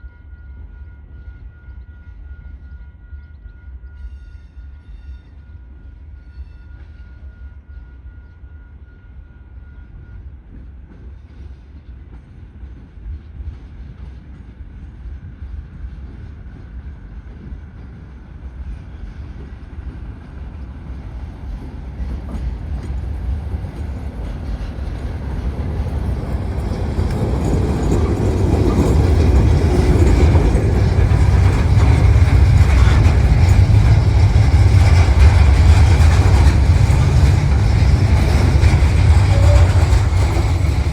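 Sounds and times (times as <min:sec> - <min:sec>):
diesel locomotive rumbling: 0:17.2 - 0:40.9.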